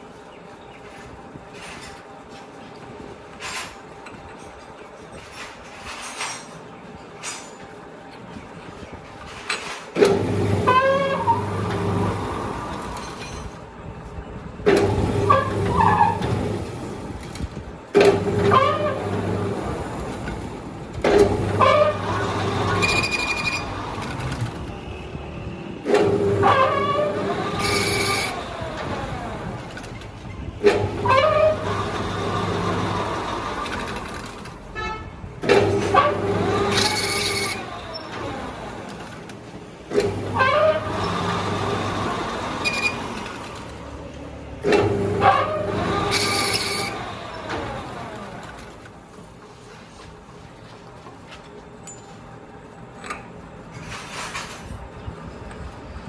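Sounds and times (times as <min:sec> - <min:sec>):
lathe spinning up and down: 0:10.0 - 0:13.5, 0:14.7 - 0:34.7, 0:35.4 - 0:49.1
high metallic squeal: 0:21.5 - 0:25.5, 0:26.3 - 0:28.5, 0:31.0 - 0:32.5.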